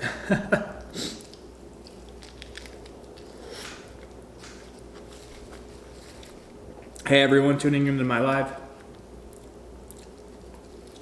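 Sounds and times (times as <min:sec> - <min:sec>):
person chewing food: 0:00.7 - 0:07.0, 0:08.8 - 0:11.0.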